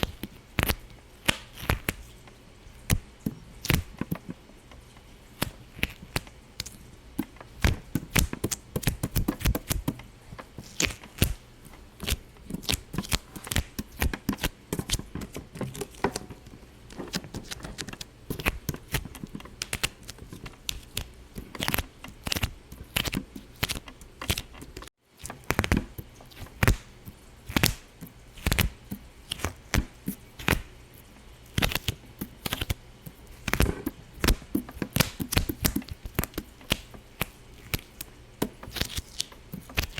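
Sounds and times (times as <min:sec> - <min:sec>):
sharp pops and crackles: 0:00.0 - 0:02.1, 0:02.9 - 0:04.8, 0:05.4 - 0:11.4, 0:31.5 - 0:39.9.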